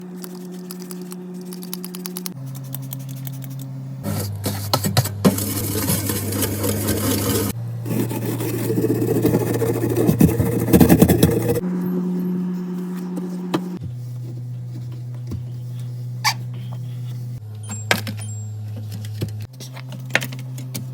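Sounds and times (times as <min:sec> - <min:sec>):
music with held low notes: 0:11.4 - 0:19.5.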